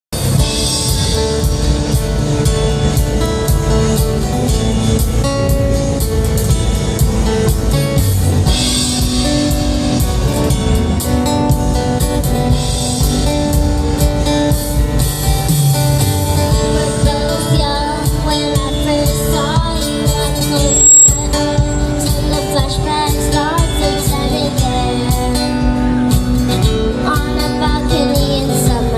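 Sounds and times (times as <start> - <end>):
drum kit: 0.1 - 28.9
guitar: 0.1 - 28.9
girl singing: 16.5 - 26.0, 26.9 - 28.9.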